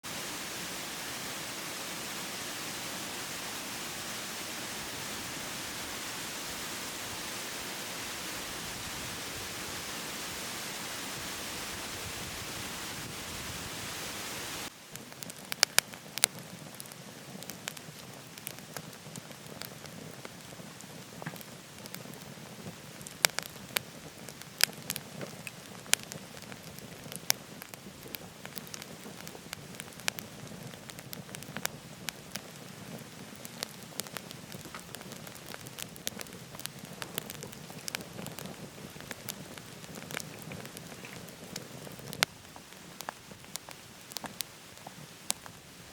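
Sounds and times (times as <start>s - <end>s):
waterfall rushing: 0.0s - 14.7s
steady rushing hiss: 0.0s - 45.9s
wood fire crackling: 0.0s - 45.9s
sharp pops of fire: 14.6s - 45.6s.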